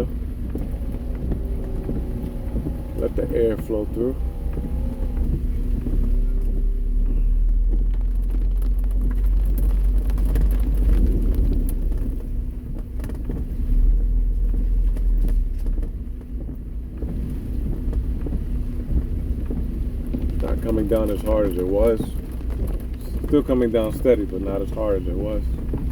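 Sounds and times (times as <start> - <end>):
raindrops ticking: 0.0 - 25.9
road noise on wet road: 0.0 - 25.9
wind buffeting in car: 0.0 - 25.9.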